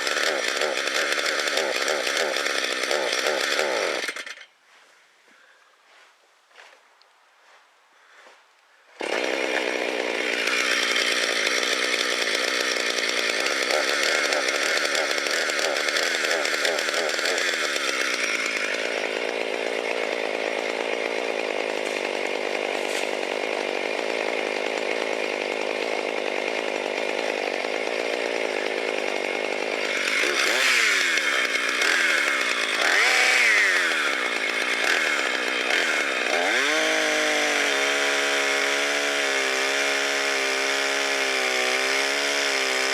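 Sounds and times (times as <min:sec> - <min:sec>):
chainsaw cutting wood: 0:00.0 - 0:04.6, 0:09.0 - 0:42.9.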